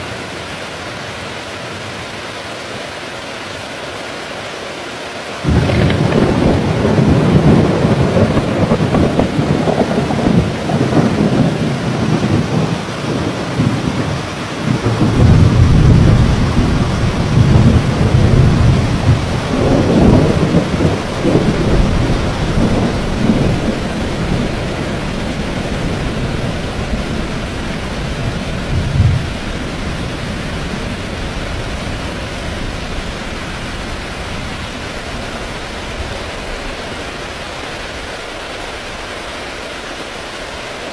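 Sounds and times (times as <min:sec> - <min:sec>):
heavy rain: 0:00.0 - 0:40.9
rolling thunder: 0:05.4 - 0:37.3.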